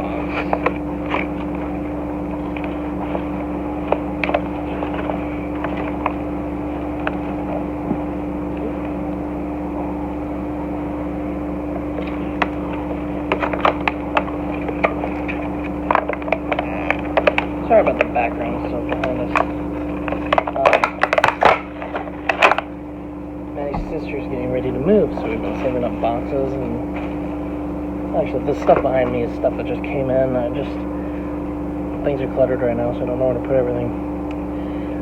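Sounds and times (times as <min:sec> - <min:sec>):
machine hum with fixed tone: 0:00.0 - 0:35.0
plastic packaging crackling: 0:12.0 - 0:22.7.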